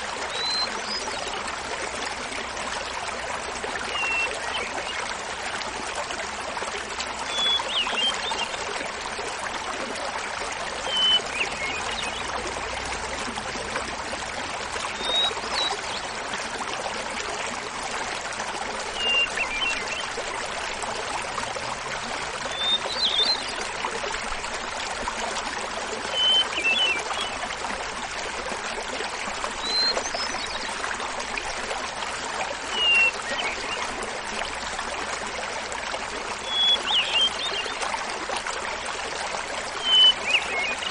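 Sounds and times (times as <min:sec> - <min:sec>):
small waterfall splashing: 0:00.0 - 0:40.9.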